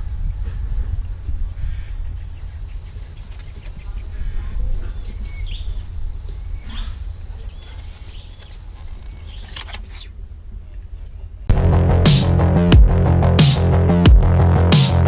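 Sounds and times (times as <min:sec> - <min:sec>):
high insect drone: 0:00.0 - 0:10.3
bird chirps: 0:00.0 - 0:11.4
low wind rumble: 0:00.0 - 0:13.2
electronic music with a beat: 0:11.5 - 0:15.0.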